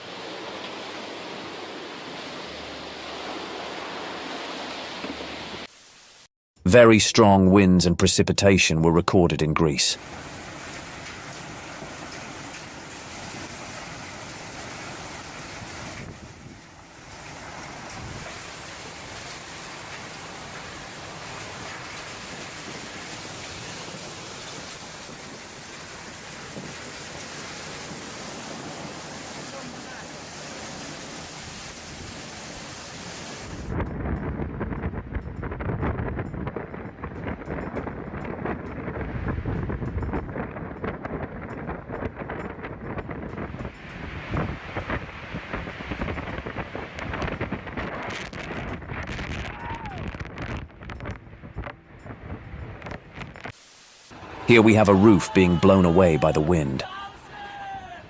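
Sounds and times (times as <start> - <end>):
heavy rain: 0.0 - 6.3, 10.0 - 33.7, 53.4 - 56.8
tornado winds blowing: 10.0 - 55.4.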